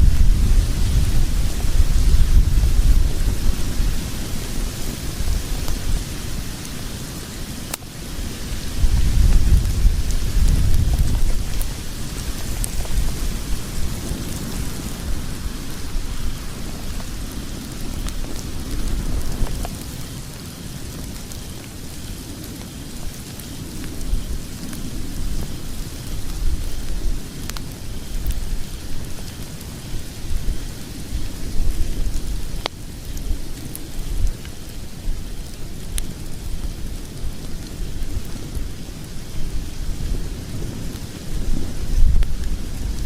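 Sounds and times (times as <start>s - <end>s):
fire crackling and popping: 0.0s - 43.0s
fire rumbling: 0.0s - 43.0s.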